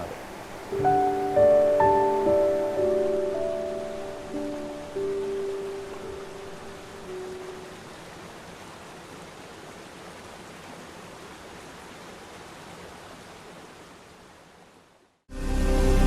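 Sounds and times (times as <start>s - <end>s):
waterfall rushing: 0.0s - 13.7s.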